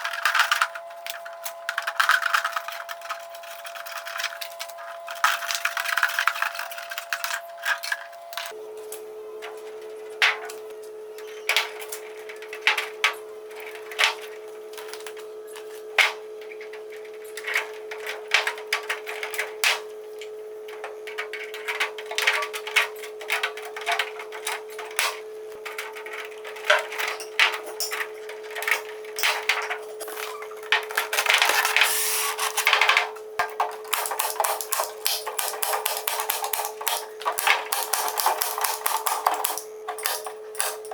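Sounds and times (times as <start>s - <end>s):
steady hum: 27.0s - 40.9s
scraping or rustling: 29.5s - 33.2s.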